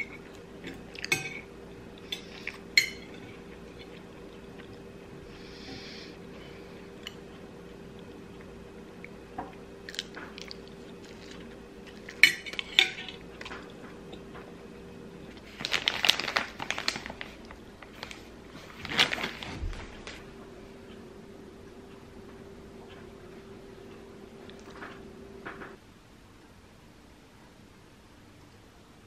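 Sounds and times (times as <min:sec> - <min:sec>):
dishes clattering: 0:00.0 - 0:01.5, 0:12.0 - 0:13.7
person chewing: 0:01.9 - 0:04.9, 0:09.8 - 0:14.2.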